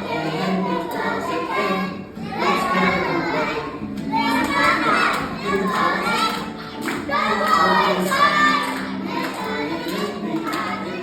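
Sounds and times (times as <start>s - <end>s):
backing music: 0.0s - 11.0s
children singing: 0.0s - 11.0s.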